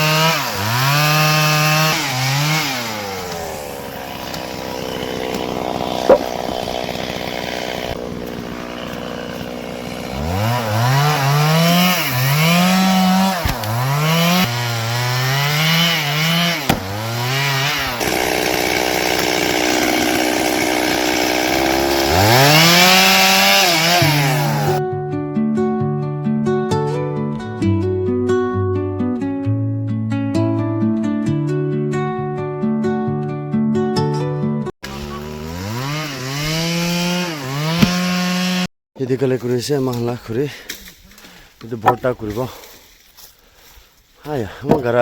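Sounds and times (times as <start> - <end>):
chainsaw engine revving: 0.0 - 24.8, 34.8 - 38.7.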